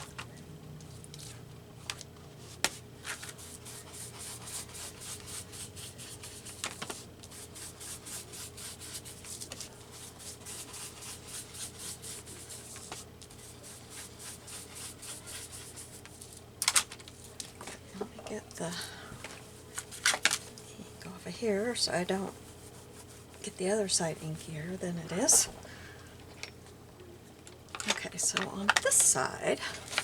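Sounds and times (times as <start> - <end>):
ink pad rubbing on paper: 3.0 - 16.0.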